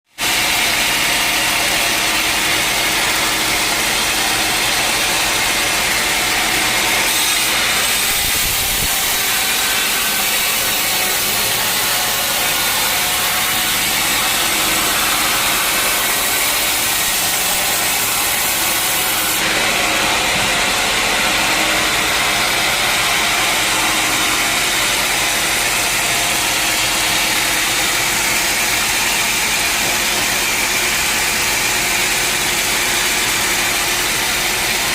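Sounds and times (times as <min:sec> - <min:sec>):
saw cutting through log: 0:00.1 - 0:34.9
mill engine drone: 0:00.2 - 0:34.9
loud high hiss from cut: 0:06.2 - 0:19.5.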